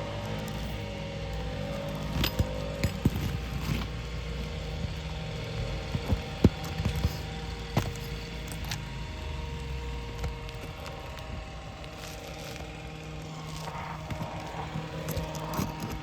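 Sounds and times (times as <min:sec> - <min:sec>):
steady low hum: 0:00.0 - 0:16.0
metal tools prying nails: 0:01.4 - 0:12.6.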